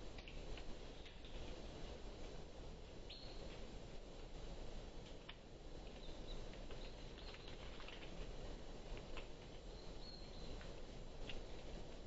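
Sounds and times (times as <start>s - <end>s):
steady background hiss: 0.0s - 12.0s
small birds chirping: 0.2s - 1.6s, 3.0s - 3.7s, 5.8s - 8.4s, 9.0s - 11.7s.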